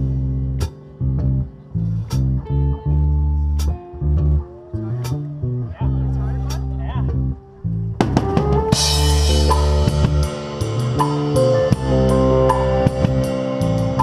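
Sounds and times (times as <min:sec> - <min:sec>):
rock band playing: 0:06.4 - 0:14.0
drum beats: 0:08.0 - 0:14.0.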